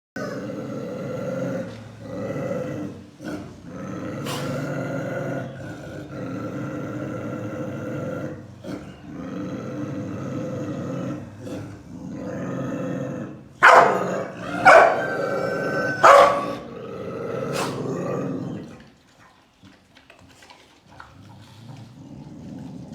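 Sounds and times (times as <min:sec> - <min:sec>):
dogs growling: 0:00.2 - 0:19.3, 0:20.1 - 0:22.9
dog barking: 0:13.6 - 0:15.2, 0:15.9 - 0:16.7.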